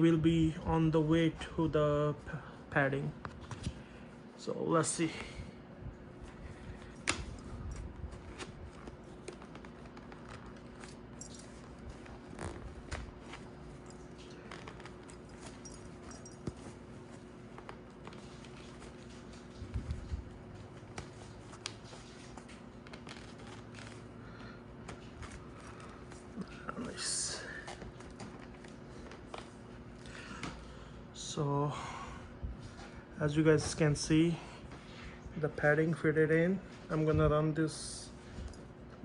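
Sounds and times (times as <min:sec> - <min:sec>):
faint steady hum: 0:00.0 - 0:39.0
helmet padding handling noises: 0:06.1 - 0:30.6.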